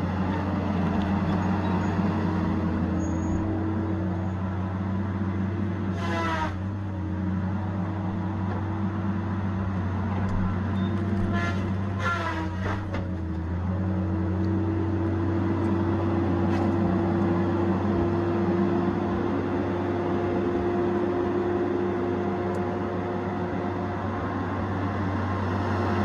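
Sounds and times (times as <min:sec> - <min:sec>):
diesel engine humming: 0:00.0 - 0:26.0.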